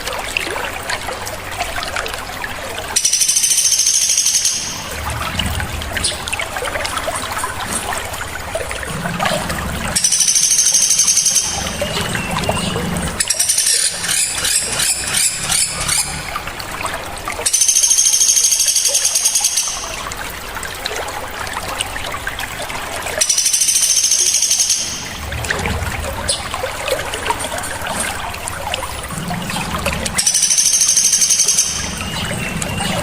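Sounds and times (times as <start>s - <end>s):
shrill bird trills: 3.0s - 4.9s, 10.0s - 12.2s, 13.2s - 16.2s, 17.5s - 20.0s, 23.2s - 25.2s, 30.2s - 33.0s
small songbirds singing: 3.0s - 4.9s, 10.0s - 16.2s, 17.5s - 19.9s, 23.2s - 25.1s, 30.2s - 33.0s.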